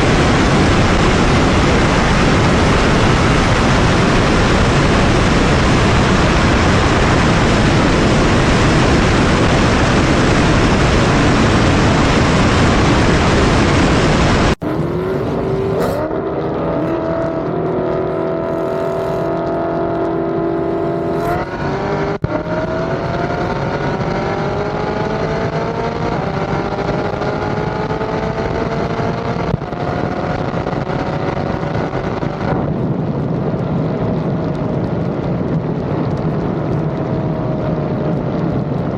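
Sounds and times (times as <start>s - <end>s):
loud rushing noise: 0.0s - 26.7s
car engine accelerating: 0.0s - 38.9s.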